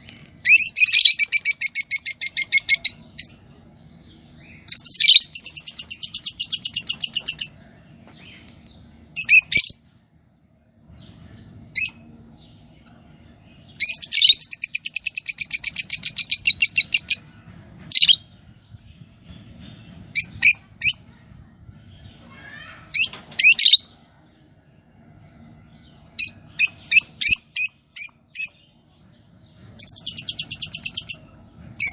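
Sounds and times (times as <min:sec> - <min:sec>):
lovebirds chirping: 0:00.0 - 0:10.1, 0:10.9 - 0:24.5, 0:25.2 - 0:31.9.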